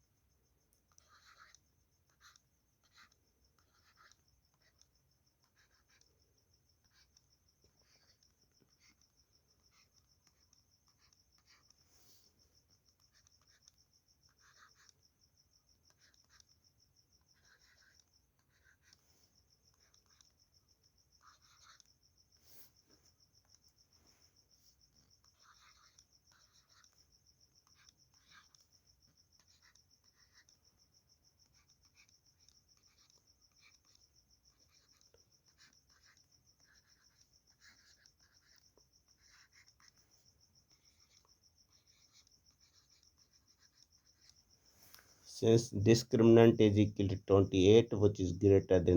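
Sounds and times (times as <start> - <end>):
faint writing scratching: 0.0 - 48.9
faint high-pitched pulsing: 36.1 - 48.9.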